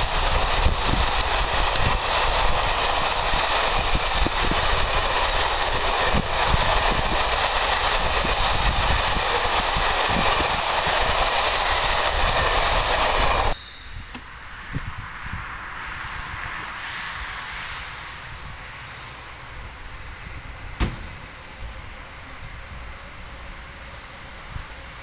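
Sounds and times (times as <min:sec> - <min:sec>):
train rolling past: 0:00.0 - 0:13.6, 0:16.4 - 0:25.0
wheels clicking over rails: 0:00.0 - 0:13.6.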